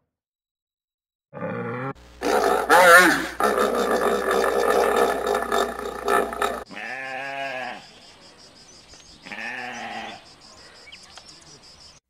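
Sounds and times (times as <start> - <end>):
sheep bleating: 4.6 - 7.9, 9.2 - 10.2.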